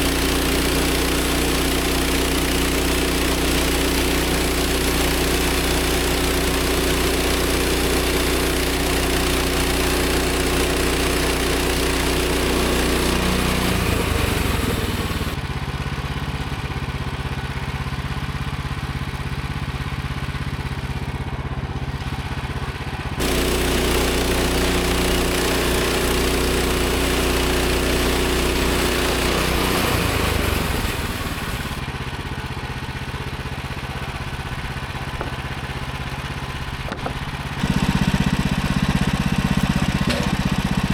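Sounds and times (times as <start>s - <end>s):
sawmill gas engine running: 0.0s - 40.9s.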